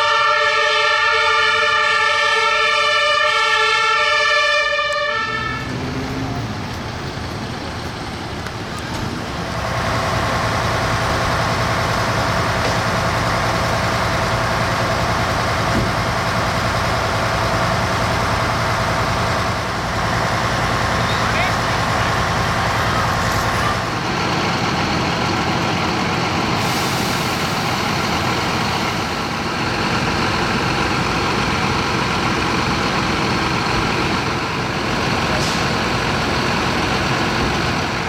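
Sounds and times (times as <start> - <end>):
fire engine horn chord: 0.0 - 5.8
truck engine running: 4.8 - 38.0.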